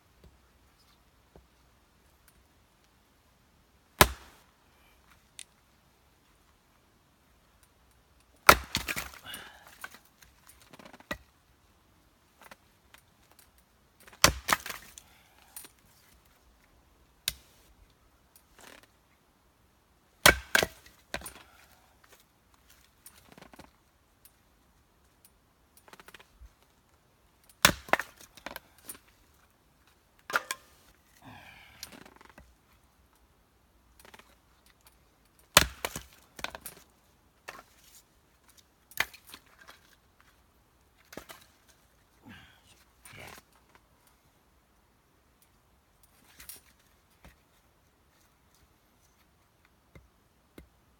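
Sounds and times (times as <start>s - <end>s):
axe striking firewood: 4.0s - 4.4s, 8.4s - 10.0s, 14.0s - 15.1s, 20.2s - 21.6s, 27.6s - 29.0s, 30.3s - 30.8s, 35.5s - 36.8s.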